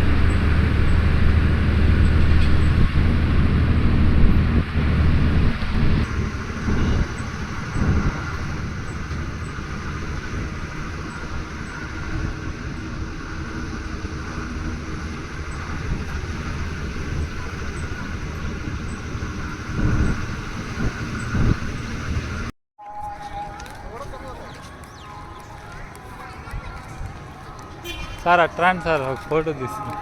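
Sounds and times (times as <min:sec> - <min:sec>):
vehicle road noise rumble: 0:00.0 - 0:22.5, 0:23.4 - 0:30.0
wind gusts on microphone: 0:00.0 - 0:22.5.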